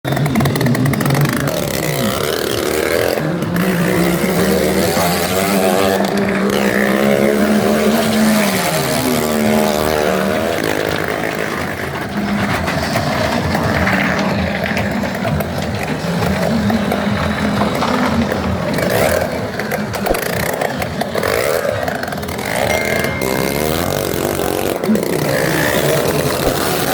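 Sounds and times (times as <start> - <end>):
motorcycle engine revving: 0.0 - 26.9.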